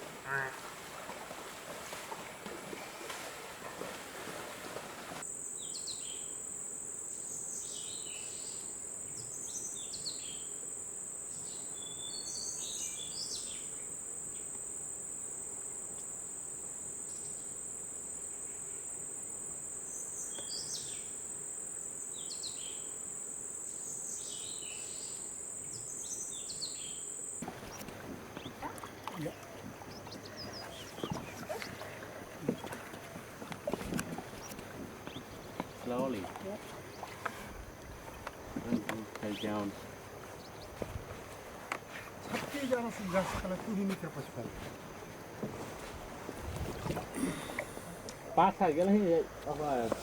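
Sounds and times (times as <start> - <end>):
high-pitched insect drone: 5.3 - 41.3
short bird calls: 27.4 - 38.2.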